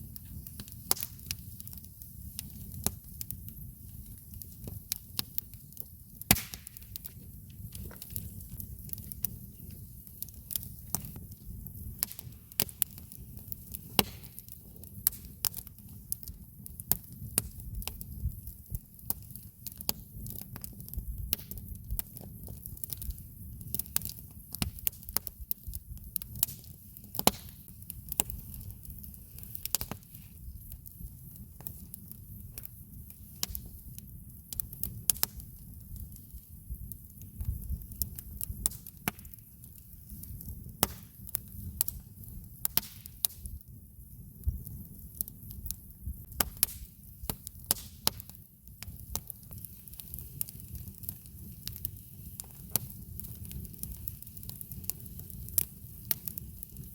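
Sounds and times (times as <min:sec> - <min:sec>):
campfire crackling and popping: 0:00.0 - 0:56.9.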